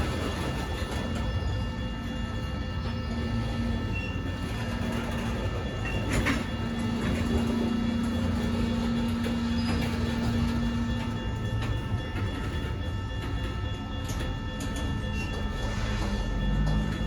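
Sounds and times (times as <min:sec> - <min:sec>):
freight train rumbling on rails: 0:00.0 - 0:17.0.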